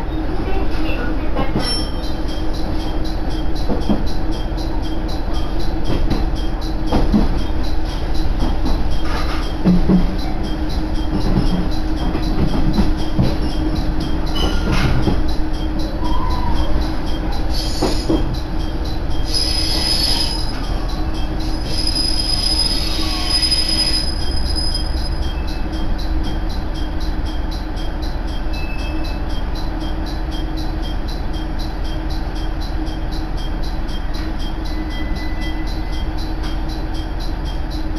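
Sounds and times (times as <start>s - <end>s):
railcar rumble and hum: 0.0s - 37.9s
high-pitched wheel squeal: 1.5s - 2.2s, 14.3s - 18.4s, 19.2s - 25.7s.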